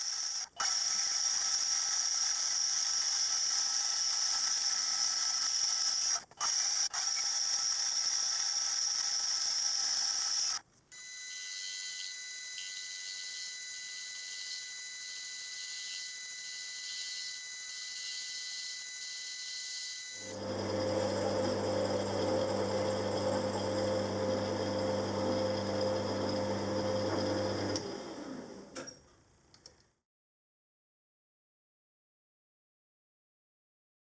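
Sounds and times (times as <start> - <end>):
machine tool high whine: 7.0 - 27.9
machine low hum: 20.3 - 27.8.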